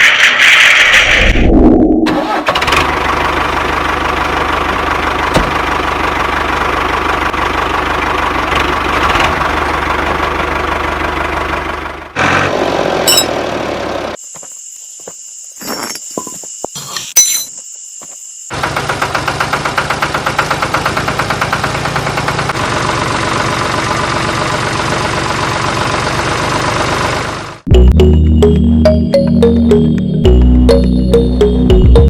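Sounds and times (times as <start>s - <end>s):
tractor engine running: 2.1s - 14.2s, 18.5s - 32.0s.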